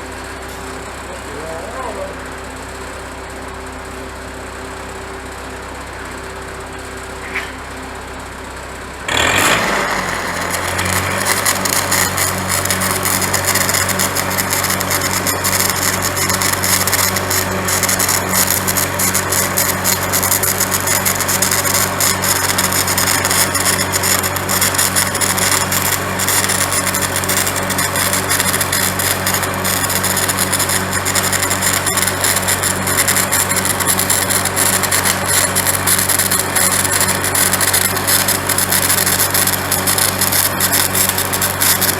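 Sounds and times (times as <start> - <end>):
welder engine humming: 0.0 - 41.9
welding arc crackling: 9.1 - 41.9.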